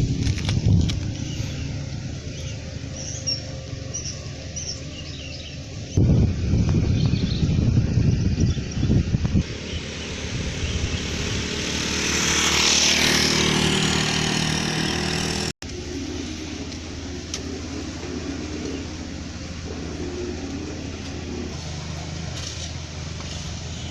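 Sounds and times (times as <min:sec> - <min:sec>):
engine hum: 0:00.0 - 0:23.9
truck passing: 0:00.0 - 0:23.9.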